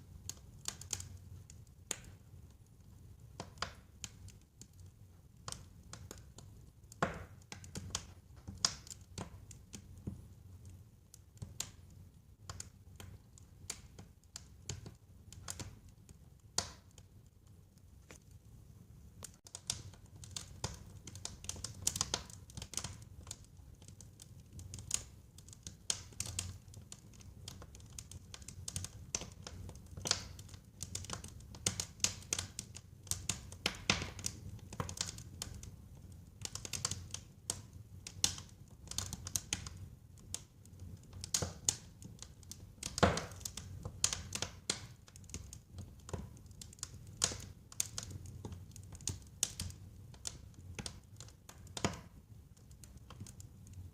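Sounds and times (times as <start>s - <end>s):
wood fire crackling and popping: 0.0s - 53.9s.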